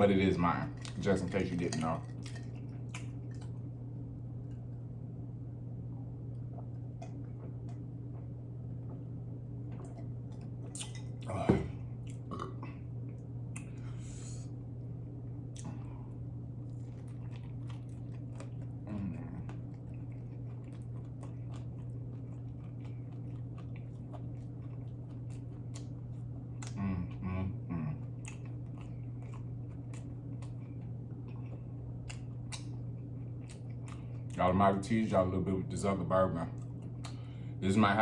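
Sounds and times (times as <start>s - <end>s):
person chewing food: 2.0s - 3.7s, 15.4s - 34.5s, 36.5s - 37.5s
person humming: 26.7s - 28.0s.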